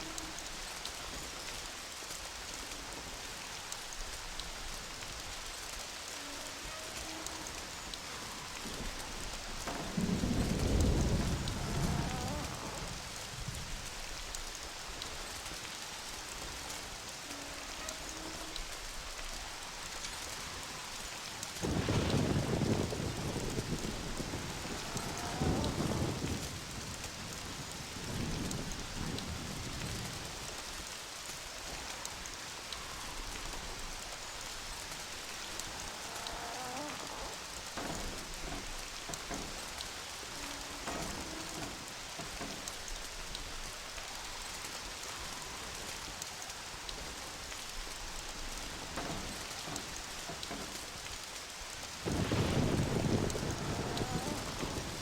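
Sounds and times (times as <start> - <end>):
steady rain: 0.0 - 55.0
rolling thunder: 7.2 - 14.1, 20.1 - 30.6, 51.8 - 55.0.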